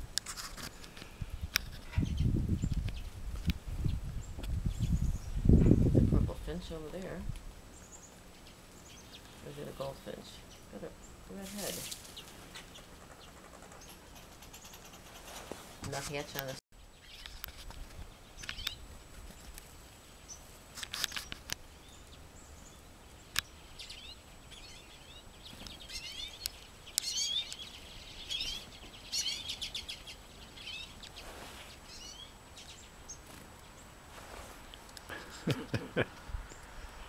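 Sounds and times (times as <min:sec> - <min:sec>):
chickadees chirping: 0:06.5 - 0:17.4, 0:18.0 - 0:34.0.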